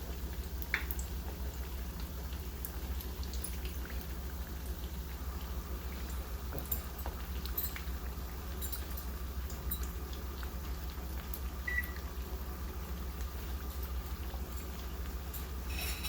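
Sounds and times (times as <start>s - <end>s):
food deep-frying in oil: 0.0s - 16.0s.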